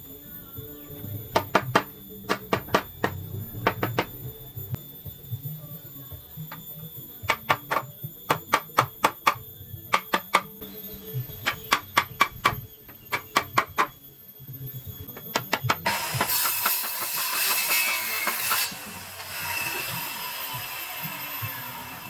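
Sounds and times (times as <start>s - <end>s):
hammer striking wood: 1.3s - 4.2s, 7.3s - 10.6s, 11.4s - 14.0s, 15.1s - 18.6s.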